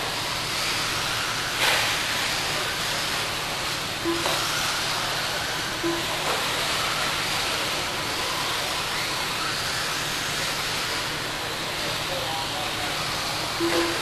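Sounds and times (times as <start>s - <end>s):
electric motors whining: 0.0s - 14.0s
short beep: 13.6s - 14.0s.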